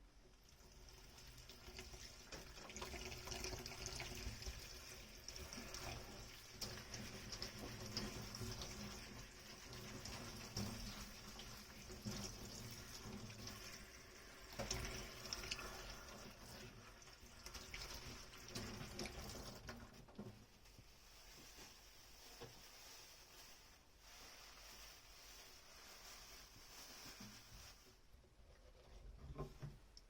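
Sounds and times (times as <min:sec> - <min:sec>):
water running from tap: 0:00.4 - 0:20.1.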